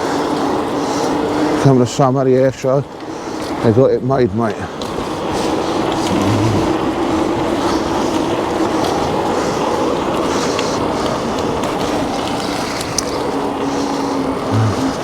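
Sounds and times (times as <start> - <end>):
bike tyres on path: 0.0 - 15.0
faint steady hum: 4.5 - 15.0.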